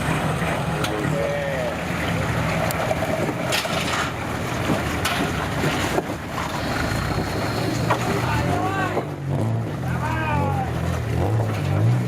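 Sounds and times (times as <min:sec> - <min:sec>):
vehicle engine running: 0:00.0 - 0:12.0
knocks and rattles: 0:02.6 - 0:09.2.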